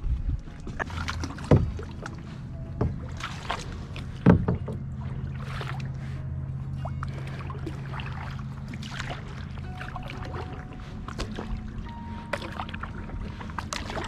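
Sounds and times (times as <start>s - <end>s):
paddle splashing in water: 0.4s - 14.0s
paddle sharp knocks: 4.2s - 4.9s.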